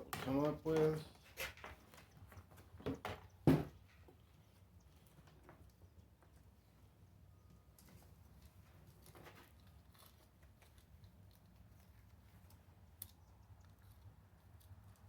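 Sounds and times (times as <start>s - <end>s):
rustling: 7.8s - 15.0s.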